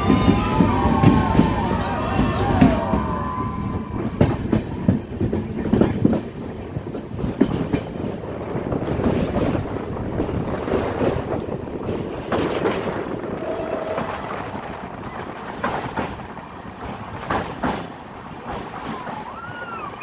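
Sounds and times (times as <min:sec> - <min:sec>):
train rumbling and rattling: 0:00.0 - 0:20.0
wavering wheel squeal: 0:18.8 - 0:20.0.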